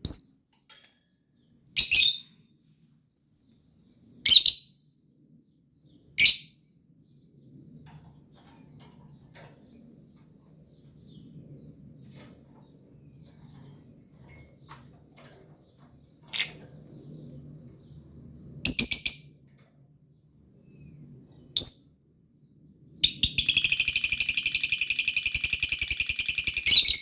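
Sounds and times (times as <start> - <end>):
lovebird chirps: 23.0 - 27.0
lovebird fast pulsed chatter: 23.0 - 27.0.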